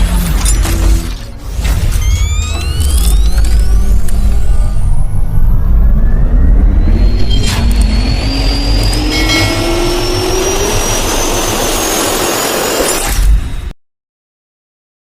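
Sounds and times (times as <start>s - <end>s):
jet engines whining: 2.0s - 13.4s.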